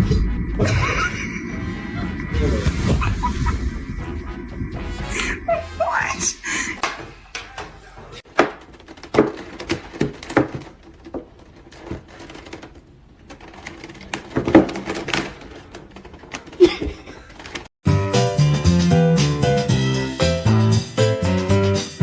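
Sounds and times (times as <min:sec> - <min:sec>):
irregular knocks and clicks: 0:06.8 - 0:17.7.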